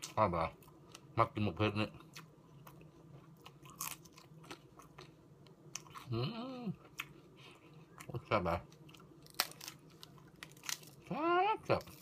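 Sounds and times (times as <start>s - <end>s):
person crunching raw vegetables: 2.0s - 6.2s, 7.8s - 12.0s.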